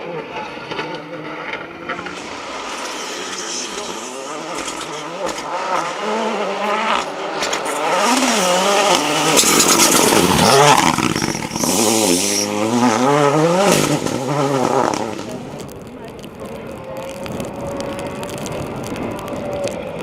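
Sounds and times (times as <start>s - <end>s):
rally car engine revving: 0.0s - 20.0s.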